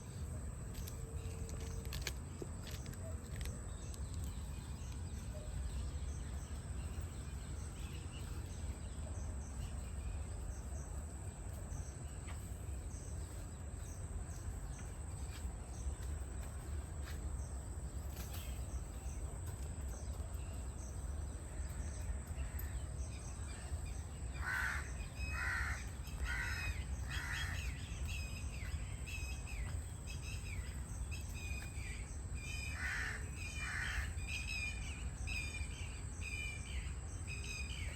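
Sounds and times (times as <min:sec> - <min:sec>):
low rumble of wind: 0:00.0 - 0:37.9
loud repeated bird calls: 0:24.0 - 0:29.7, 0:30.6 - 0:35.0.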